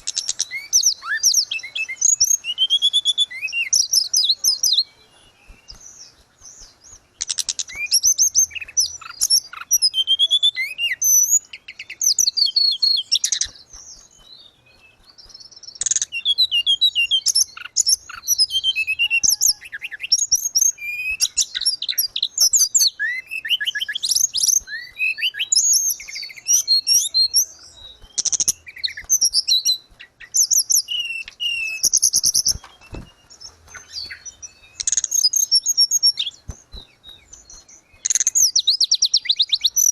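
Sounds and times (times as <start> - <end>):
songbird twittering: 0.0 - 39.9.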